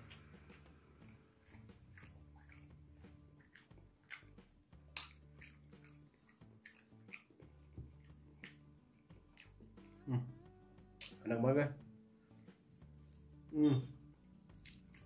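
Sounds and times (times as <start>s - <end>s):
person chewing: 0.0s - 10.3s, 14.4s - 15.0s
wet mouth clicks: 0.0s - 10.4s, 11.0s - 11.2s, 14.4s - 15.0s.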